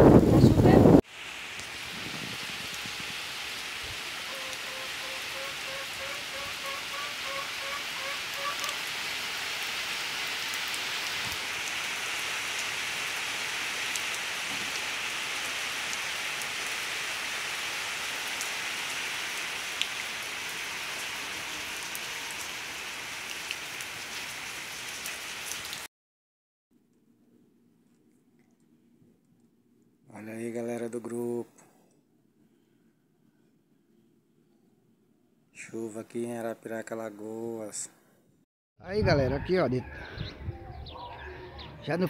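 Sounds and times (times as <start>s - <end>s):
steady rain on roofs: 1.0s - 25.9s.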